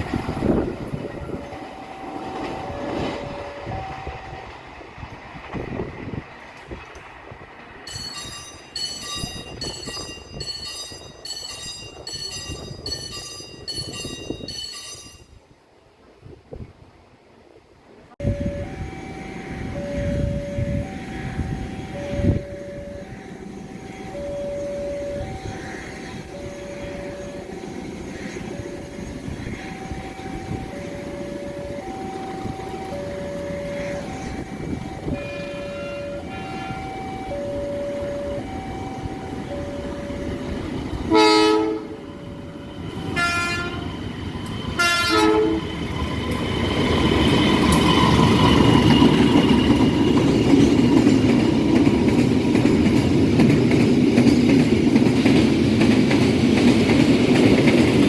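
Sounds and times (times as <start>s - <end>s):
train rumbling on rails: 0.0s - 58.0s
level crossing alarm two-tone: 0.5s - 4.6s, 18.2s - 43.9s
bright ringing tone: 7.9s - 15.3s.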